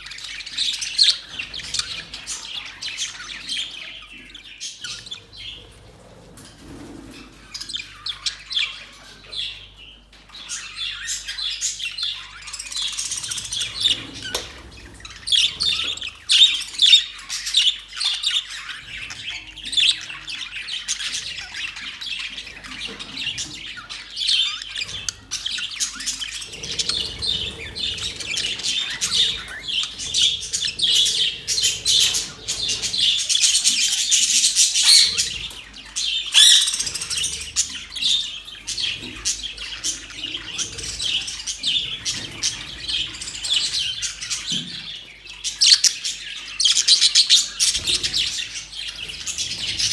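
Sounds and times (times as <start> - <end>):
budgerigars chattering: 0.0 - 5.8, 7.3 - 49.9.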